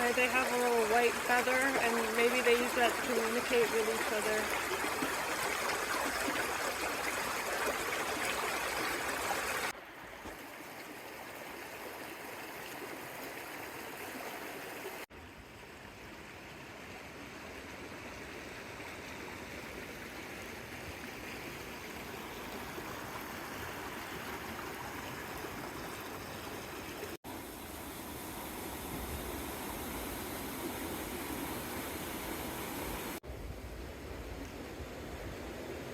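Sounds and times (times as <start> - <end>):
river water flowing over rocks: 0.0 - 15.0.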